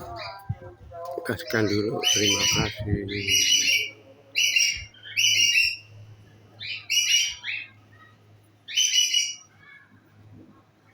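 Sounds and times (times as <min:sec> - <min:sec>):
bird chirping: 0:01.4 - 0:06.0, 0:06.6 - 0:08.1, 0:08.7 - 0:09.8.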